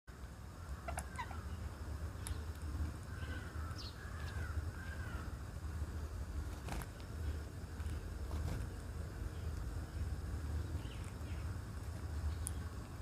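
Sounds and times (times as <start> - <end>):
birds chirping: 0.1 - 13.0
arched bird calls: 0.5 - 5.8, 9.2 - 11.6.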